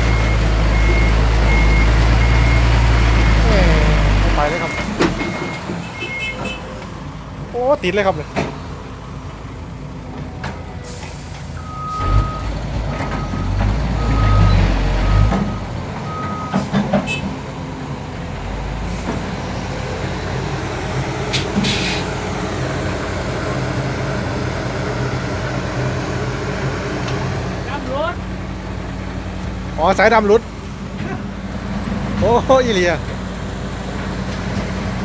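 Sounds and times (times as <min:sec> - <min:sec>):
reversing beeper: 0:00.0 - 0:06.6, 0:10.9 - 0:17.2
diesel truck engine revving: 0:00.0 - 0:35.0
air hissing: 0:21.3 - 0:22.2.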